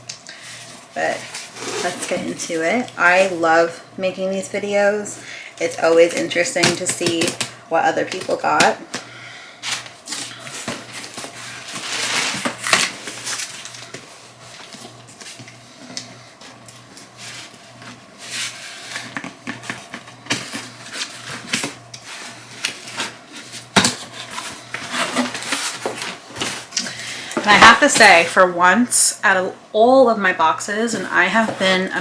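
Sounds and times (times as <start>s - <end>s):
paper rustling and crackling: 9.6s - 15.4s, 17.0s - 28.4s.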